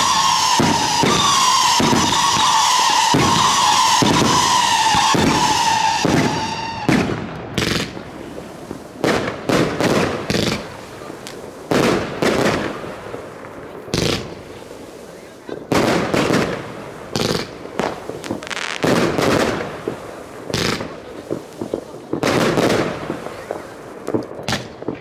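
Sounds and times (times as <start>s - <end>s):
high firework whistle: 0.0s - 7.1s
firework bangs and crackles: 0.0s - 25.0s
fireworks firing shots: 0.0s - 25.0s.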